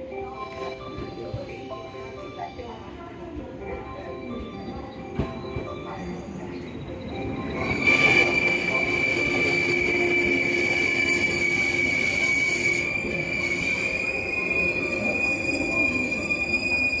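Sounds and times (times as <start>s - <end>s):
train rumble: 0.1s - 17.0s
train wheels squealing on rails: 4.0s - 17.0s.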